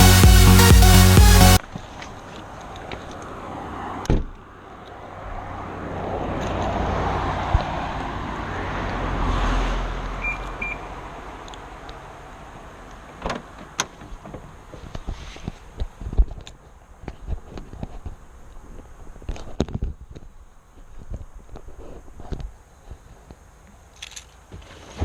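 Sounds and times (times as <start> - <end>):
car road noise: 0.0 - 15.0.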